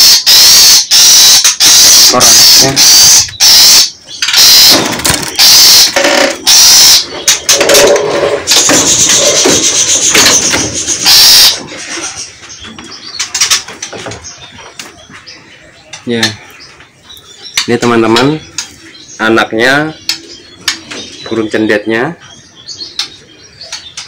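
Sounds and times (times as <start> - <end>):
birds calling harshly: 0.0 - 24.0
scattered clicks and rustles: 4.2 - 11.1, 11.8 - 15.0.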